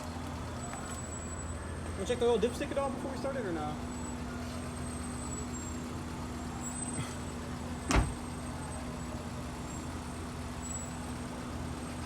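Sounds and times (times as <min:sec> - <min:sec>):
sharp thump: 0:07.9 - 0:08.2.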